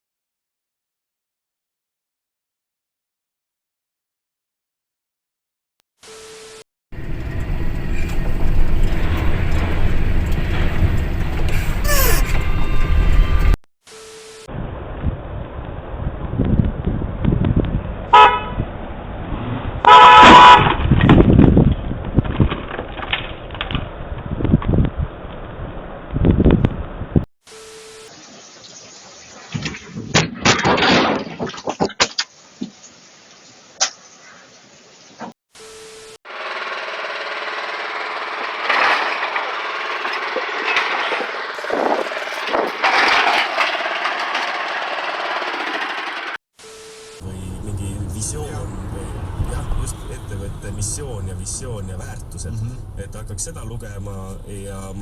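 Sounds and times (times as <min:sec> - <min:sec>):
road noise: 0:06.9 - 0:13.6, 0:14.5 - 0:27.2, 0:37.8 - 0:46.4, 0:47.2 - 0:55.0
engine with buzzy rattle: 0:07.0 - 0:13.6, 0:36.3 - 0:46.4
car horn toots: 0:18.1 - 0:18.6, 0:19.8 - 0:20.8.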